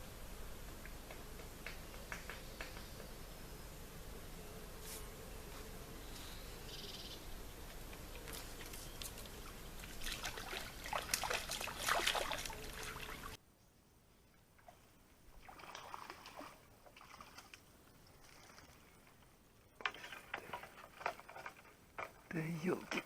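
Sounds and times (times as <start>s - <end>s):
water splashing and trickling: 7.9s - 13.4s, 14.5s - 23.0s.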